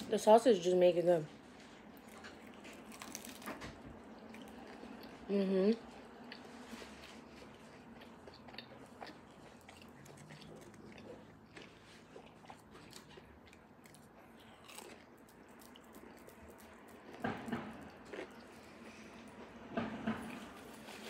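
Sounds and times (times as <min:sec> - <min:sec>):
person biting and chewing food: 0:01.9 - 0:05.2, 0:06.0 - 0:19.5.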